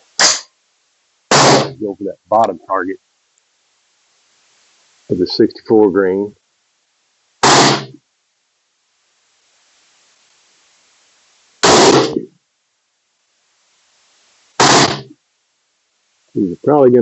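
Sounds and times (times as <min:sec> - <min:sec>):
rifle shots with ringing tail: 0:01.3 - 0:01.8, 0:07.4 - 0:08.0, 0:11.6 - 0:12.3, 0:14.6 - 0:15.1.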